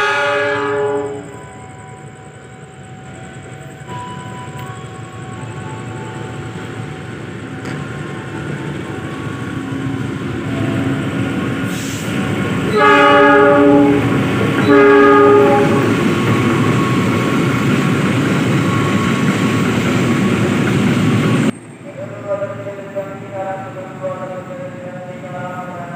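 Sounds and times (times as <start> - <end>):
train air horn blasts: 0.0 - 1.4, 11.6 - 16.1
train running noise: 0.0 - 25.9.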